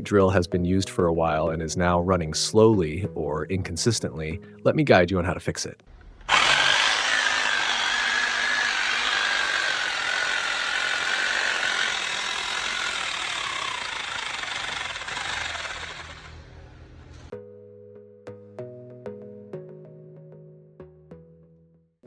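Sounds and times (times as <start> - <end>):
concrete drill hammering: 6.2 - 17.3.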